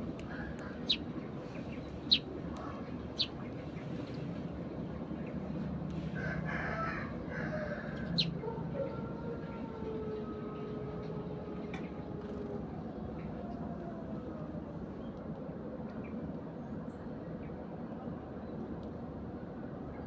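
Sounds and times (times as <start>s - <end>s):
sparrow chirps: 0.7s - 3.9s, 8.0s - 8.4s
rooster crowing: 6.2s - 10.7s.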